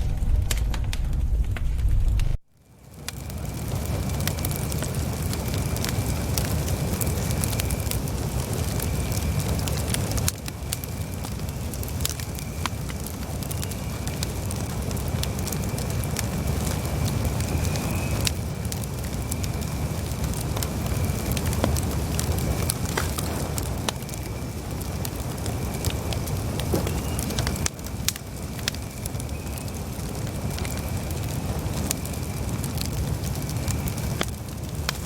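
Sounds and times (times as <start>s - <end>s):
low rumble: 0.0s - 2.4s
wood crackling and popping: 0.0s - 35.0s.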